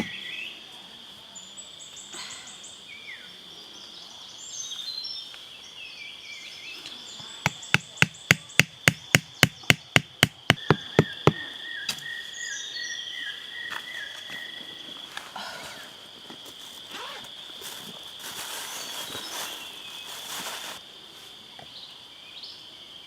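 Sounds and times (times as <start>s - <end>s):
birds chirping: 0.0s - 0.7s, 1.4s - 15.1s, 18.6s - 20.8s
high insect drone: 0.0s - 23.0s
sharp strikes on wood: 7.4s - 11.4s.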